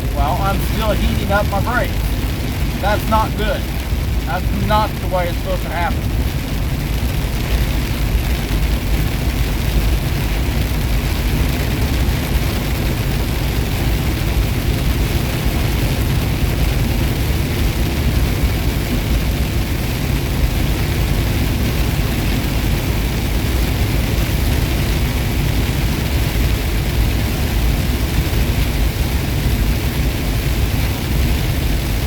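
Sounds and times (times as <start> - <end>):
truck engine drone: 0.0 - 7.9.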